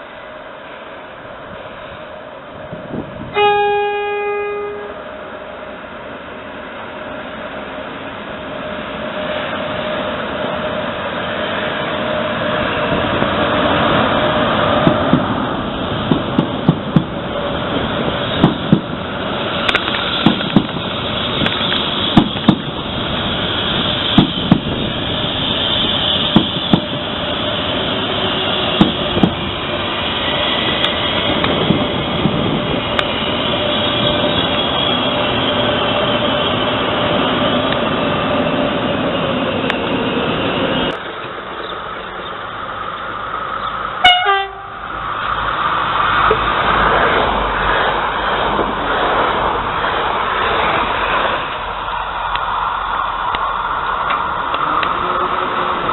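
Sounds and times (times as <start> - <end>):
train rumble: 0.0 - 55.9
train wheels knocking over rail joint: 16.0 - 17.2, 18.3 - 19.0, 19.6 - 22.8, 24.1 - 24.8, 26.3 - 27.0, 28.8 - 29.4.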